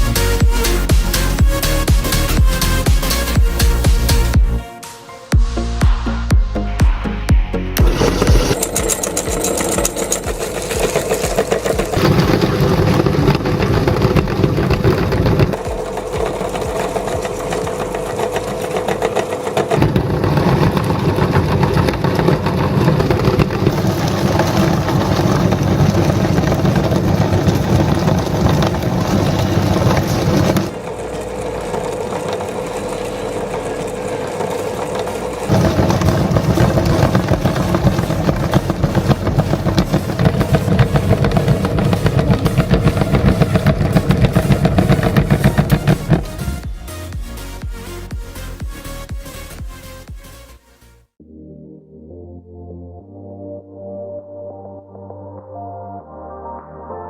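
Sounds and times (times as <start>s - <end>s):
meat grinder motor running: 7.8s - 47.8s.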